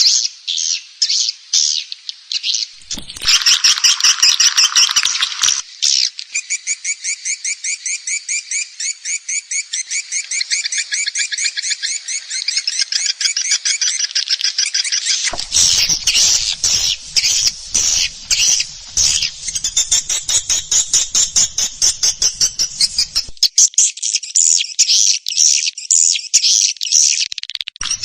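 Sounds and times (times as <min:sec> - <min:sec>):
rapid repeated bird chirps: 0:15.3 - 0:23.4
swiftlet twittering chatter: 0:15.3 - 0:23.4.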